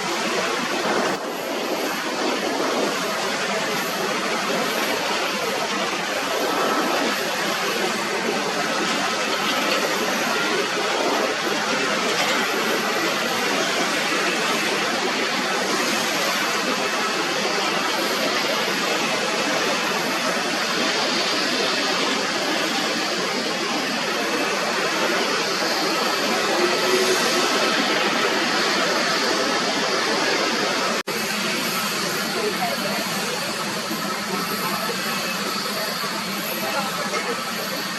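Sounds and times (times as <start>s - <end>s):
jet engines roaring: 0.0s - 37.9s.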